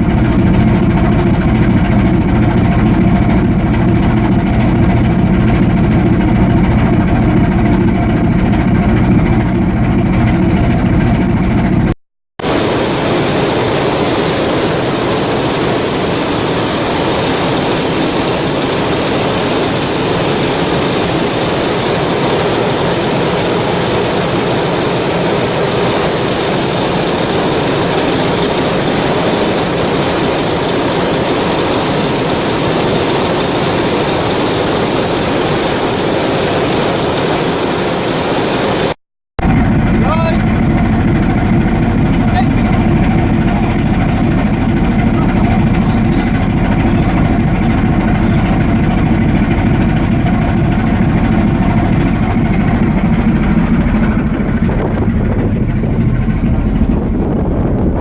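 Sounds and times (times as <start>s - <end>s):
high constant whine: 12.4s - 41.8s.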